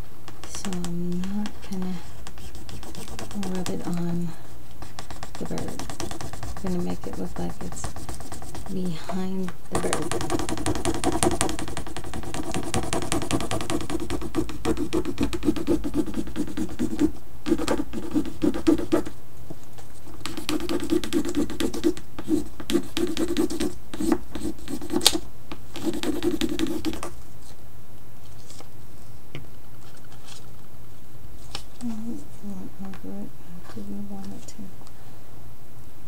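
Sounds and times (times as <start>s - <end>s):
stick rubbing on board: 2.2s - 4.0s, 4.8s - 9.0s, 9.7s - 19.1s, 20.2s - 25.1s, 25.8s - 27.1s.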